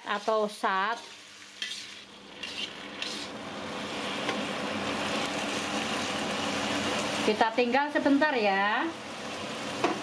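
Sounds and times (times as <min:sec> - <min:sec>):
spatula scraping a wok: 0:00.0 - 0:07.2
stir-fry sizzling in a wok: 0:00.0 - 0:10.0.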